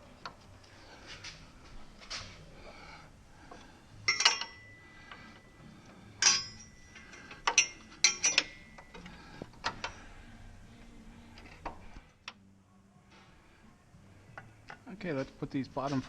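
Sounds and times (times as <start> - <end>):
metal spring clinking: 4.0 - 5.5, 6.1 - 10.2.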